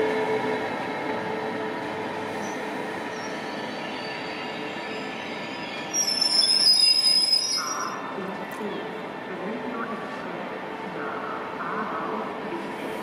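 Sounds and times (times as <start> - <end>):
electric locomotive humming: 0.0 - 13.0
train wheels squealing: 2.3 - 8.2.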